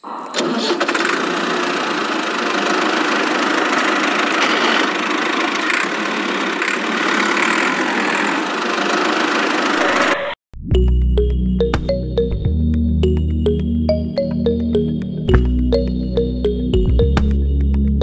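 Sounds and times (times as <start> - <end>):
small motor humming: 0.8 - 10.0.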